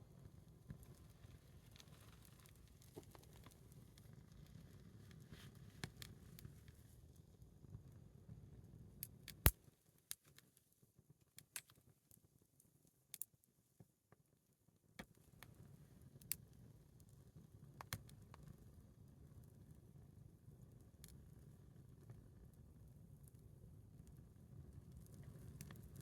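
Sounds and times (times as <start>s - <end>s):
faint low fire rumble: 0.0s - 12.9s, 13.6s - 26.0s.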